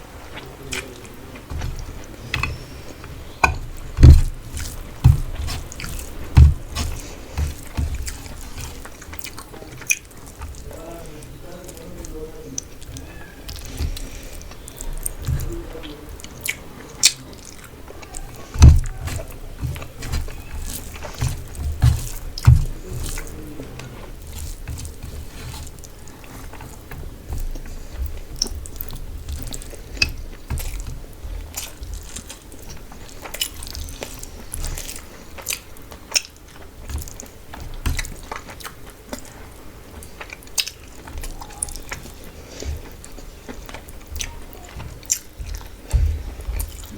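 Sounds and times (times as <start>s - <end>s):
food crunching: 0.0s - 46.9s
person chewing food: 0.0s - 46.9s
mouth clicks and wet smacks: 31.5s - 39.4s, 40.0s - 46.9s.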